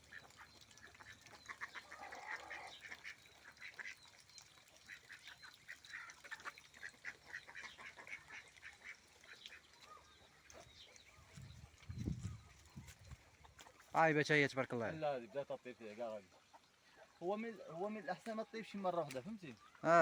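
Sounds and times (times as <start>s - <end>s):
poultry calling: 0.0s - 4.0s.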